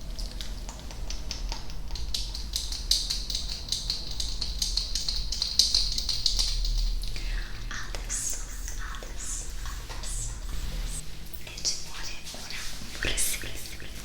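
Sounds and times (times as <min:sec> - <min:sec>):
crisp clicks and crackle: 0:00.0 - 0:10.9.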